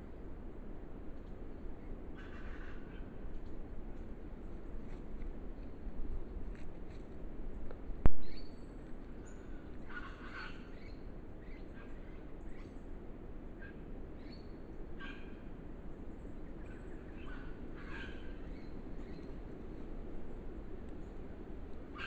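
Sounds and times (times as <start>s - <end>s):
birds giving harsh crow-like calls: 2.2s - 3.2s, 9.4s - 11.0s, 17.2s - 18.7s.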